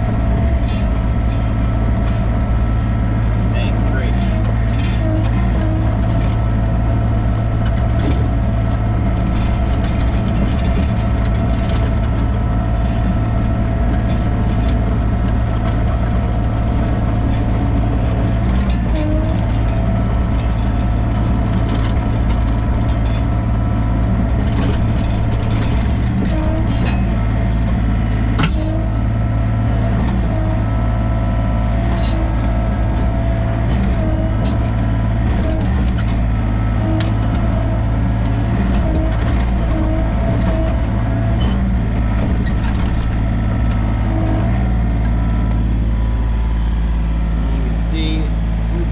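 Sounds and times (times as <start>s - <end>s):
excavator diesel engine running: 0.0s - 48.9s
hydraulic whine: 0.0s - 48.9s
metal clanks and clicks: 24.3s - 27.8s, 28.4s - 29.0s.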